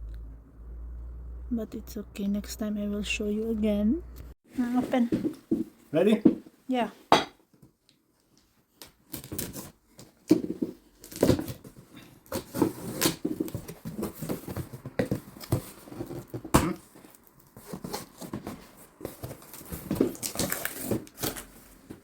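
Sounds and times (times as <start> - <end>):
packaging tearing and crinkling: 9.1 - 9.7, 19.0 - 21.6.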